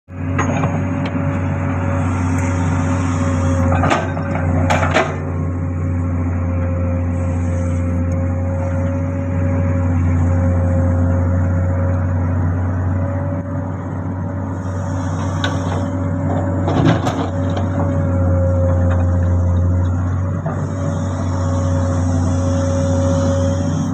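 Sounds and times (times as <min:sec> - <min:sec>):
excavator diesel engine running: 0:00.1 - 0:23.9
high whine: 0:01.3 - 0:04.9.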